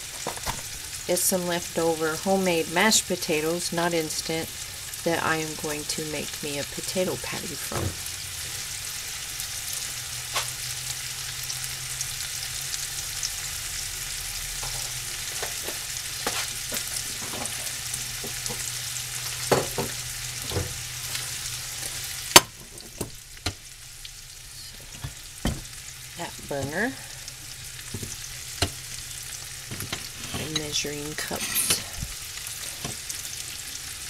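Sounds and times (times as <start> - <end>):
steak sizzling in a skillet: 0.0 - 34.0.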